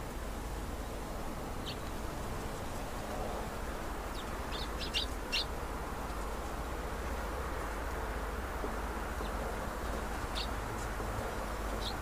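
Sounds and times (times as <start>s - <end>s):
low background hiss: 0.0s - 12.0s
small birds chirping: 1.6s - 2.0s, 4.0s - 5.6s, 9.2s - 10.6s, 11.4s - 12.0s.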